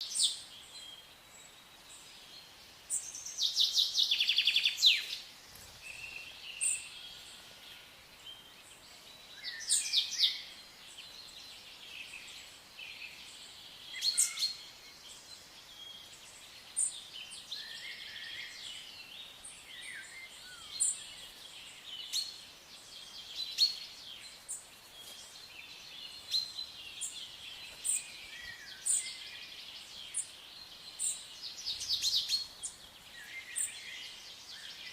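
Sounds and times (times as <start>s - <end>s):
faint outdoor hiss: 0.0s - 34.9s
songbirds singing: 0.0s - 34.9s.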